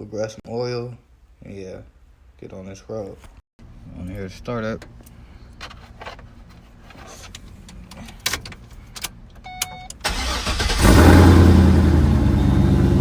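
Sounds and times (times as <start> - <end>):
car engine starting and idling: 7.3 - 13.0.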